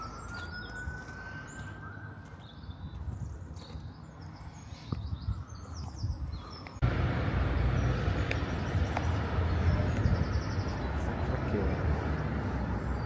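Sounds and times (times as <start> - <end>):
birds chirping: 0.0 - 13.0
distant traffic hum: 6.5 - 13.0
heavy traffic rumble: 6.5 - 13.0.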